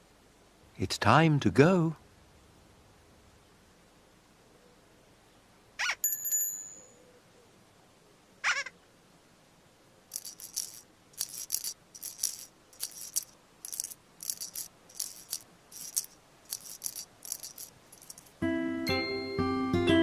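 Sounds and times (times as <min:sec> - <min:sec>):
shaker rattle: 0:10.1 - 0:18.4.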